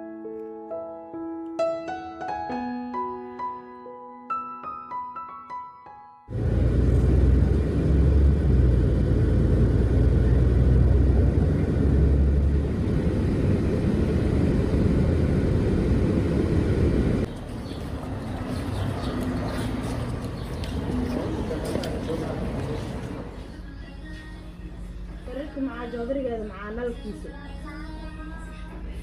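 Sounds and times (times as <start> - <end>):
moving vehicle rumble: 6.3 - 25.6.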